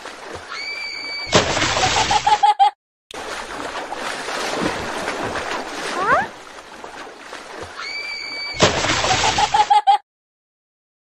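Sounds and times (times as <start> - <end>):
sea waves: 0.0 - 2.4, 3.1 - 9.8
cartoon water splashing: 0.0 - 2.5, 3.1 - 9.8.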